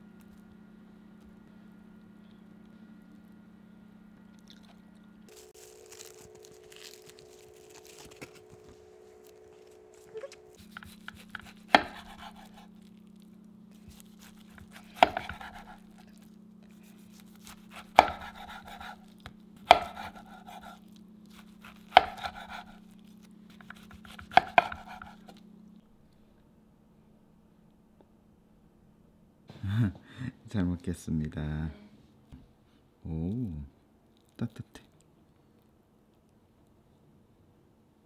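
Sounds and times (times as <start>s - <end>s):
crackle of seaweed roll cut: 4.5s - 25.4s.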